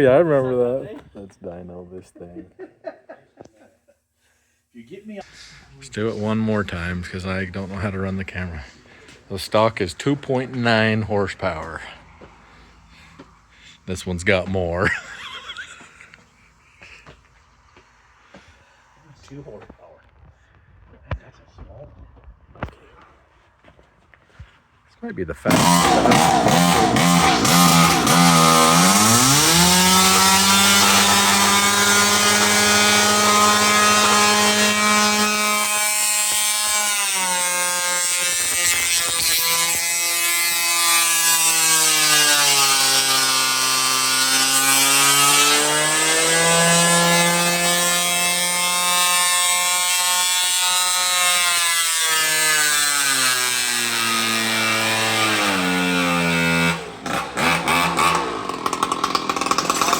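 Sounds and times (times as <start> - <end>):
chainsaw engine revving: 14.2 - 16.1, 25.5 - 59.9.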